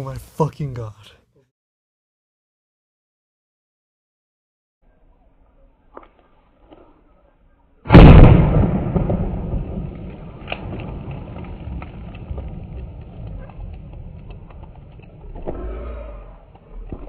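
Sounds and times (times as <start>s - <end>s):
bottle bomb bang: 7.9s - 9.9s
rumbling tail: 7.9s - 17.0s.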